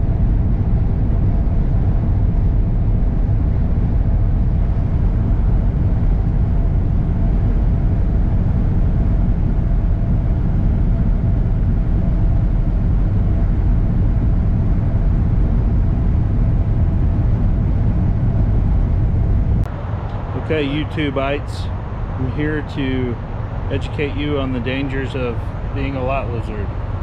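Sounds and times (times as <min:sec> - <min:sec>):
tyre and wind noise: 0:00.0 - 0:19.7
diesel truck engine drone: 0:00.0 - 0:27.0.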